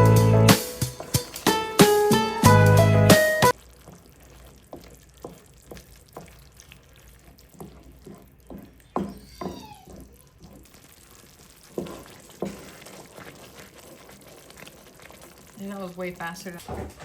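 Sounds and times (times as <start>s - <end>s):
spoon scraping in a pot: 4.0s - 15.3s
short high cry: 9.2s - 10.0s.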